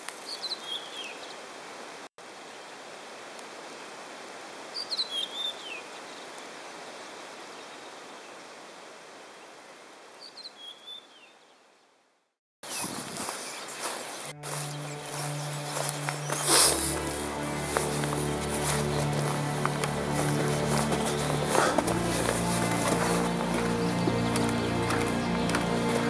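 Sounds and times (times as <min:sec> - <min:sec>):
outdoor hiss: 0:15.0 - 0:23.9.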